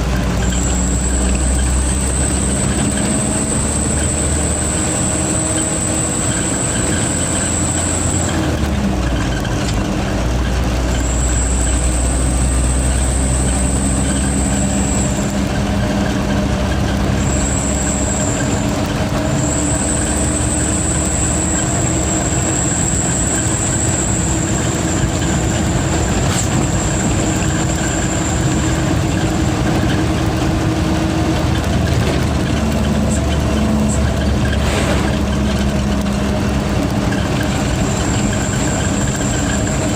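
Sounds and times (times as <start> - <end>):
diesel truck engine droning: 0.0 - 39.9
high turbo whistle: 0.4 - 8.4, 11.0 - 15.4, 17.1 - 29.2.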